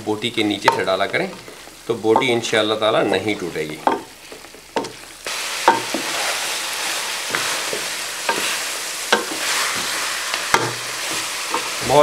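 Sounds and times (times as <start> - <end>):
meat sizzling in a pot: 0.0 - 12.0
wooden spoon scraping a pot: 5.7 - 11.9.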